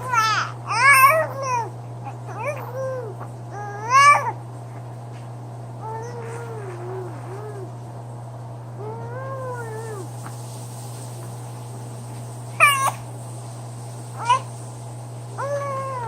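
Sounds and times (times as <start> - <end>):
baby squealing: 0.0 - 1.7, 2.3 - 4.4, 12.6 - 13.0
baby cooing: 0.0 - 4.4, 5.8 - 7.8, 8.8 - 10.1.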